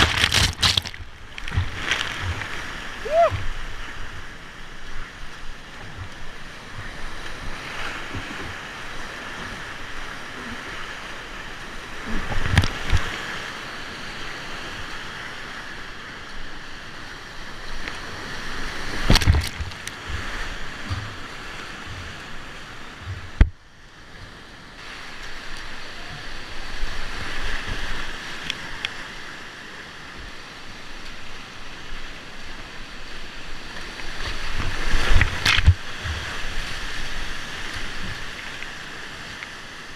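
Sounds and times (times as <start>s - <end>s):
whitewater rapids rushing: 0.0s - 4.8s.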